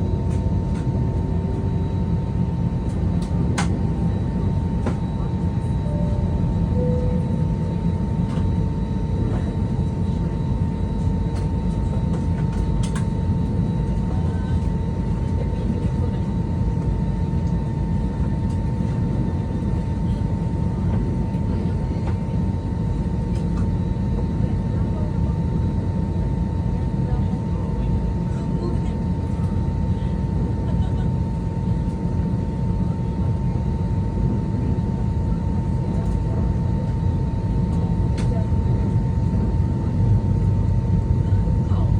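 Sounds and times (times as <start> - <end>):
aircraft cabin rumble: 0.0 - 41.9
jet engine whine: 0.0 - 41.9
constant high-pitched tone: 3.9 - 11.6.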